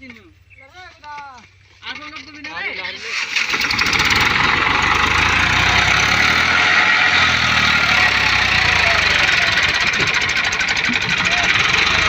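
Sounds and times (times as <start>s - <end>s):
diesel tractor engine running: 3.1s - 12.0s.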